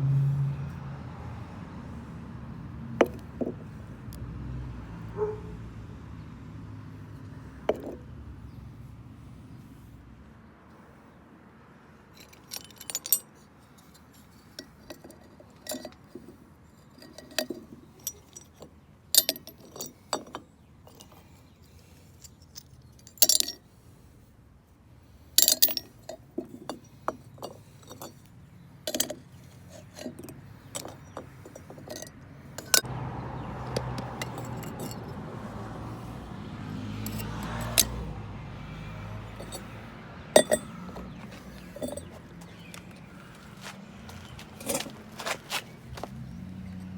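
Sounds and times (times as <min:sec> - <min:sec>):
metal tools clinking: 0:03.0 - 0:03.6, 0:12.2 - 0:23.6, 0:25.4 - 0:32.9, 0:33.6 - 0:36.1, 0:36.9 - 0:38.1, 0:39.2 - 0:46.3.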